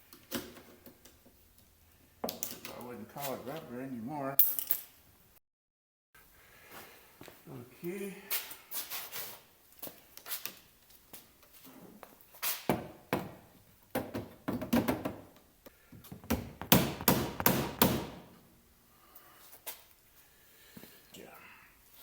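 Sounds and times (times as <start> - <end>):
hands tapping and rubbing window seal: 16.0 - 18.2.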